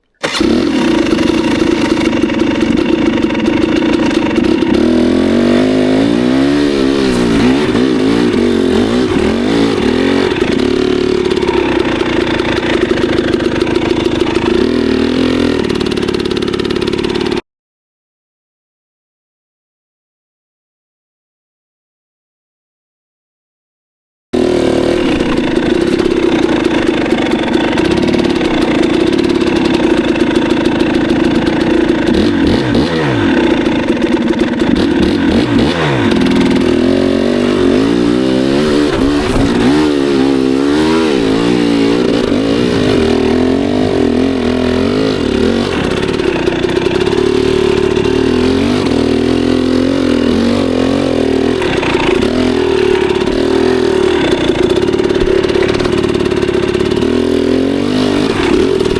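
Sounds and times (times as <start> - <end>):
dirt bike engine revving: 0.0 - 17.4, 24.4 - 58.9.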